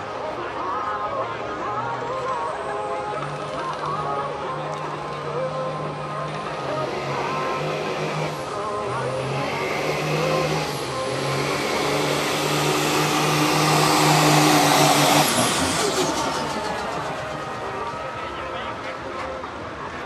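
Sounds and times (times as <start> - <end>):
truck engine at full throttle: 1.3 - 20.0
high turbo whine: 4.7 - 18.8.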